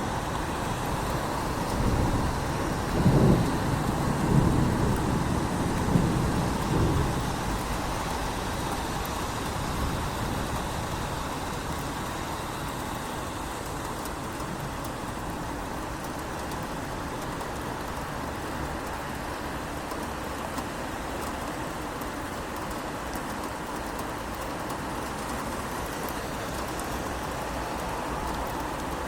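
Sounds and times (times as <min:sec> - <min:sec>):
rain hissing: 0:00.0 - 0:22.3.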